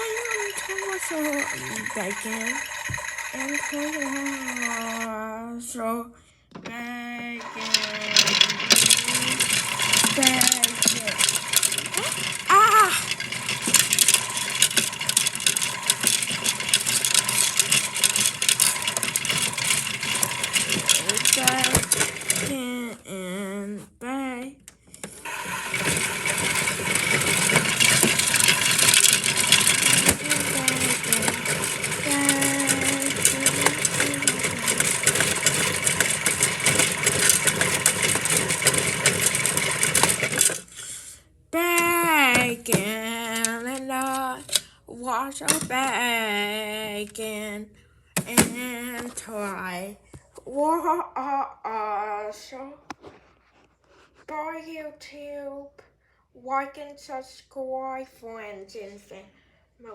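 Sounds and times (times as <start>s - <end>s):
continuous rattle: 0.0s - 5.3s, 6.6s - 23.0s, 25.0s - 40.9s, 41.6s - 47.6s, 48.2s - 50.9s
toy motor whining: 0.0s - 5.3s, 7.1s - 23.0s, 25.0s - 41.0s, 41.6s - 44.6s.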